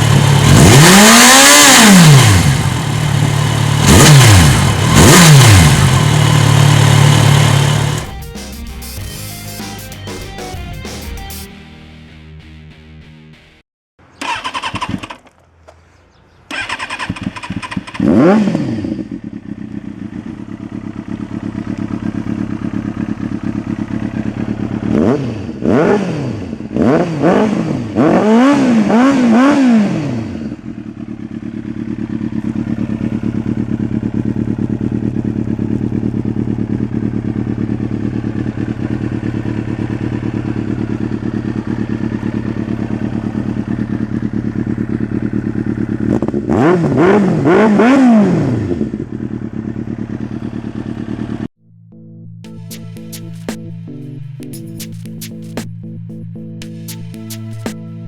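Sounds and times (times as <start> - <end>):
motorcycle engine revving and idling: 0.0 - 8.2, 14.0 - 15.6, 16.2 - 51.6.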